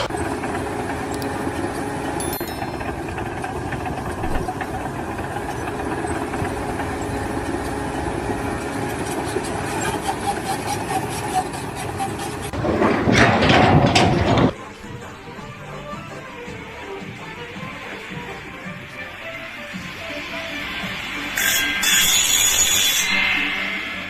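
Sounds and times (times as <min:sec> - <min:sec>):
engine running: 0:00.0 - 0:14.5.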